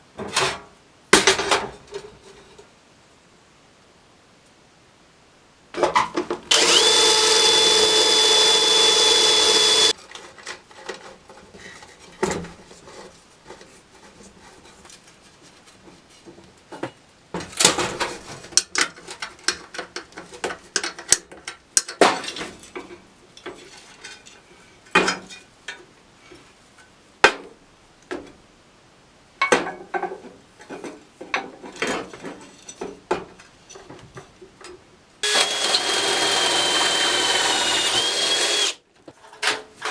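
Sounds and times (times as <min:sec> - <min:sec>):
power drill whining: 0:06.5 - 0:10.0, 0:35.2 - 0:38.8.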